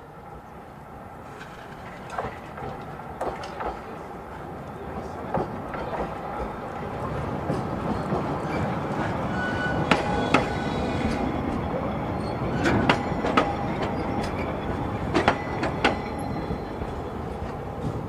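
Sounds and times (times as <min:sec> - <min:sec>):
train rumbling on track: 0:00.0 - 0:18.0
faint wheel squeal: 0:08.4 - 0:16.8.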